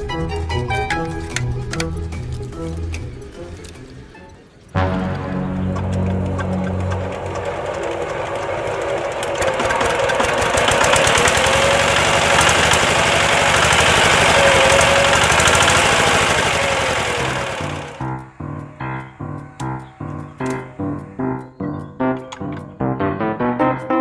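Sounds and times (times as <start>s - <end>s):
diesel tractor engine knocking: 4.8s - 21.1s.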